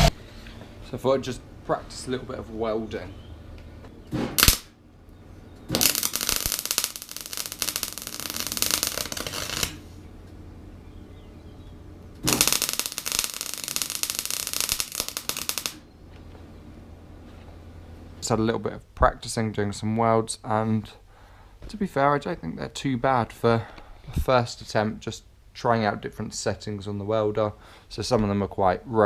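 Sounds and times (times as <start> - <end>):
welder crackling: 0.0 - 0.2, 4.1 - 4.8, 5.6 - 10.1, 12.0 - 15.9
low hum: 0.0 - 19.0.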